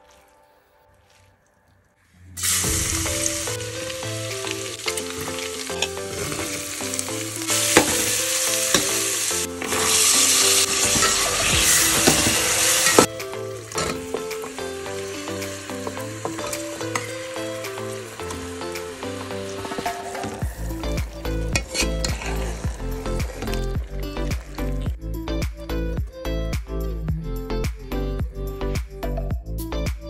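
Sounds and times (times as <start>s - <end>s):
vegetables sizzling in hot oil: 2.4s - 24.9s
metal spatula scraping pot: 4.9s - 6.8s, 7.6s - 13.1s, 21.5s - 23.8s.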